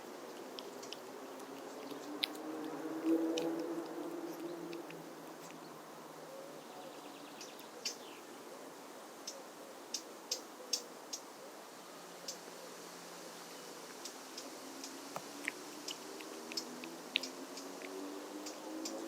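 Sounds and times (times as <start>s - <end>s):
background hiss: 0.0s - 19.0s
cat crunching dry food: 0.1s - 5.8s, 15.2s - 18.2s.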